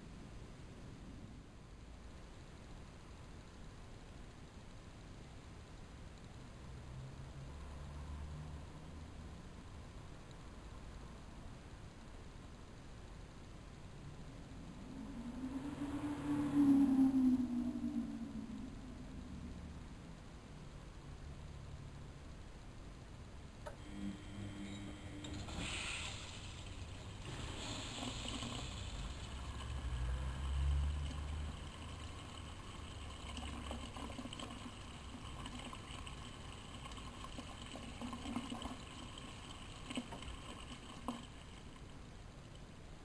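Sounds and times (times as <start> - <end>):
low motor rumble: 26.6 - 37.3.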